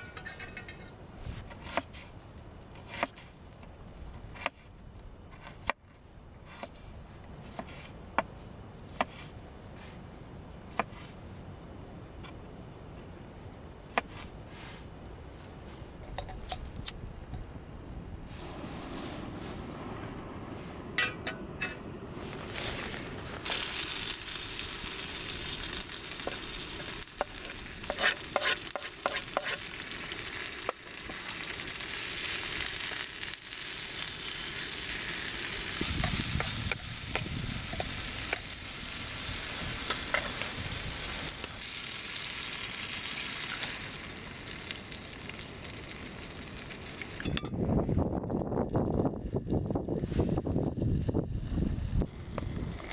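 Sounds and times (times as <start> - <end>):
food sizzling in a pan: 23.4 - 45.8
utensil stirring clicks: 45.4 - 47.4.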